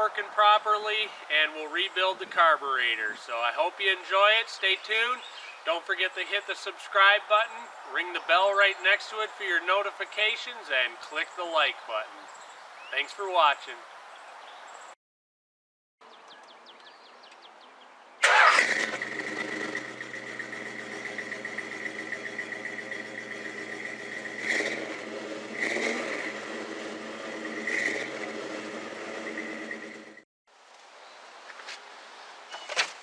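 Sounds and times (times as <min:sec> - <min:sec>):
pickup engine starting and running: 0:18.2 - 0:30.2.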